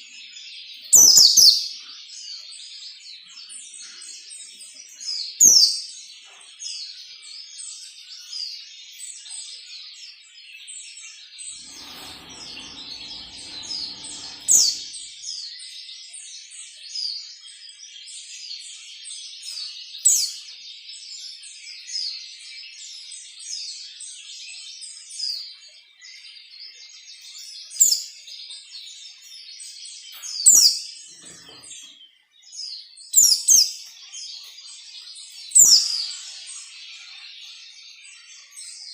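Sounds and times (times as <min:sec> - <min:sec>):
soft low rustling: 0:11.6 - 0:15.1.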